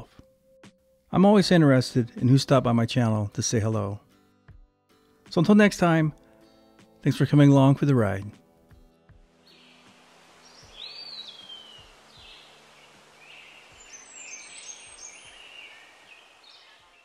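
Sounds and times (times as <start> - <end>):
faint steady hiss: 0.0 - 4.2, 5.1 - 17.0
birds calling and chirping: 9.4 - 17.0.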